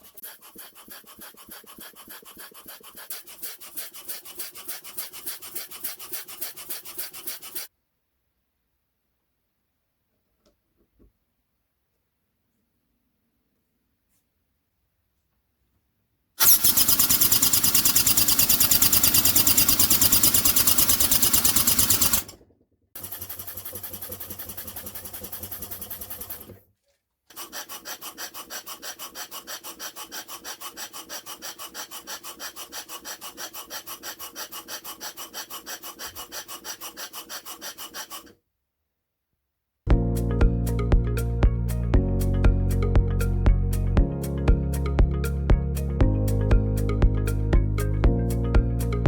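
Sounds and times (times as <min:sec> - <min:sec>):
steam hissing: 0:16.4 - 0:22.3.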